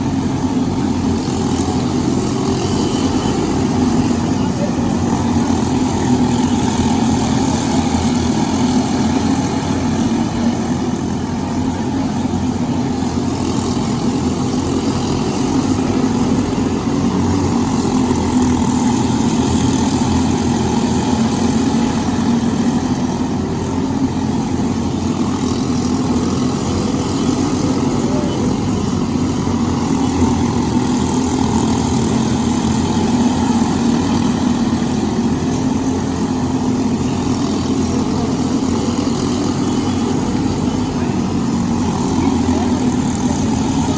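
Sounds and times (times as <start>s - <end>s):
kart engines droning: 0.0s - 43.9s.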